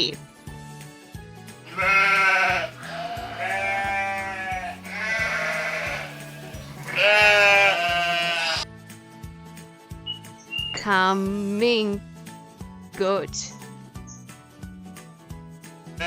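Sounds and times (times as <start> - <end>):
background music with bass line: 0.0 - 16.0
sheep bleating: 1.6 - 8.6.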